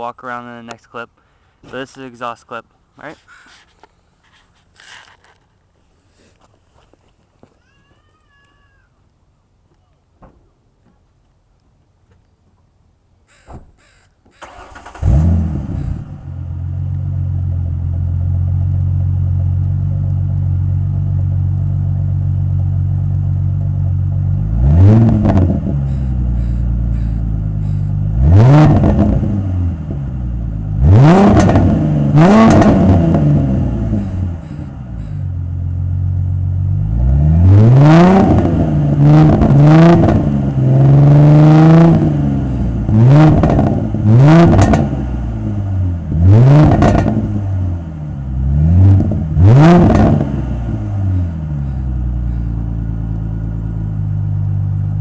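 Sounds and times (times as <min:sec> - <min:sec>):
car engine idling and revving: 0:14.4 - 0:55.0.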